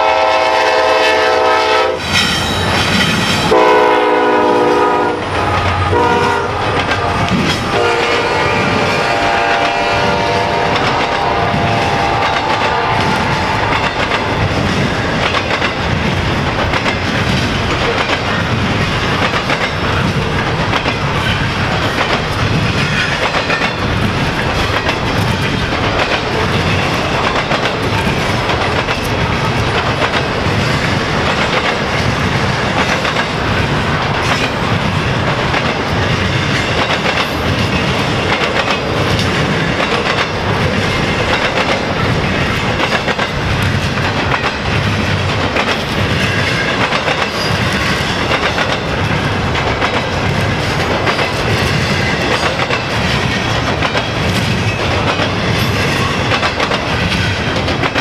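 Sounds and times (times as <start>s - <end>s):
train rumble: 0.0s - 58.0s
train wheels clacking on track: 0.0s - 58.0s.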